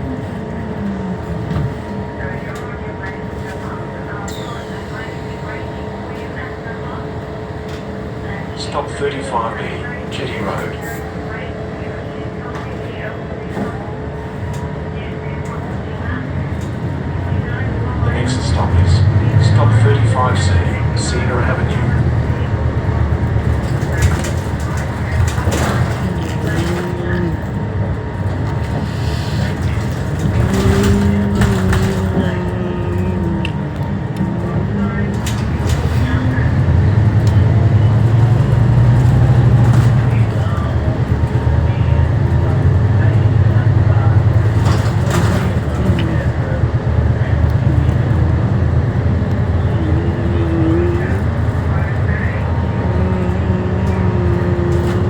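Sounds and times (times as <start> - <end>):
road noise: 0.0 - 4.0, 15.4 - 55.0
bus diesel engine rumbling: 0.0 - 55.0.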